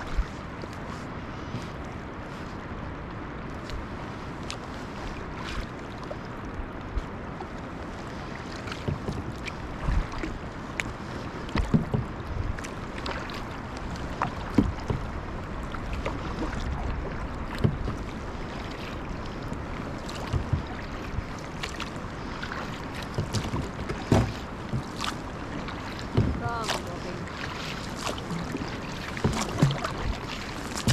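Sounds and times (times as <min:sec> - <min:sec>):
water wash: 0:00.0 - 0:02.5, 0:03.6 - 0:30.9
ice knocking against kayak: 0:11.5 - 0:12.1, 0:14.2 - 0:15.2, 0:17.5 - 0:18.1, 0:20.1 - 0:20.8, 0:23.0 - 0:27.2, 0:27.9 - 0:30.9.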